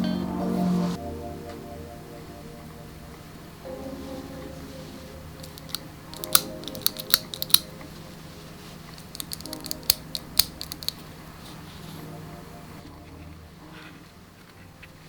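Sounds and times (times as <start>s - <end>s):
soft background music: 0.0s - 15.0s
quick sharp clicks and snips: 5.4s - 7.9s, 9.0s - 11.0s.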